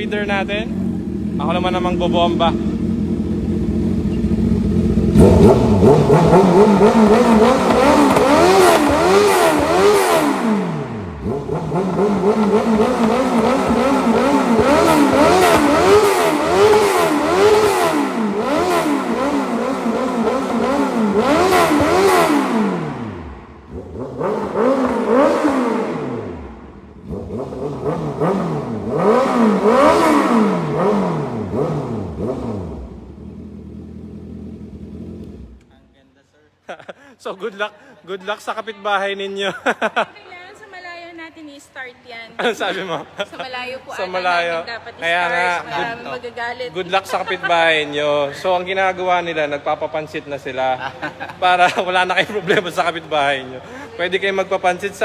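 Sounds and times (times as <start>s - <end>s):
motorcycle engine revving: 0.0s - 35.8s.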